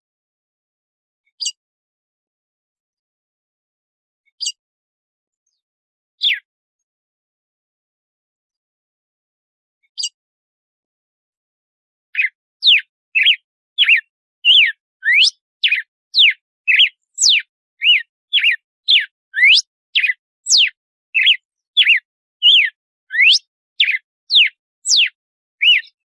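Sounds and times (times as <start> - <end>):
bird singing whistled notes: 6.2 - 6.5, 12.2 - 26.0.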